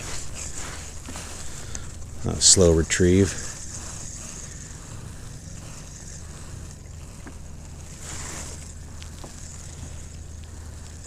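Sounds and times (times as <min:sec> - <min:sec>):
water lapping: 0:00.0 - 0:11.0
wind: 0:00.0 - 0:11.0
faint ticks: 0:03.3 - 0:11.0.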